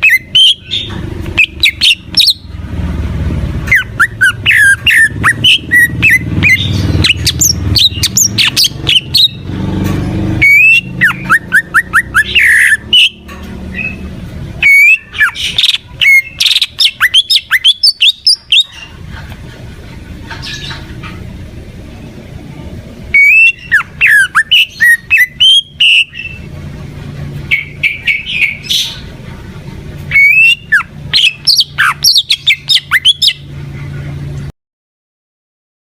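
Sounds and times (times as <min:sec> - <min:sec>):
bird singing whistles and squawks: 0:00.0 - 0:02.5, 0:03.7 - 0:09.5, 0:10.4 - 0:18.8, 0:23.1 - 0:26.5, 0:27.5 - 0:29.1, 0:30.1 - 0:33.5
low background hum: 0:00.0 - 0:34.5.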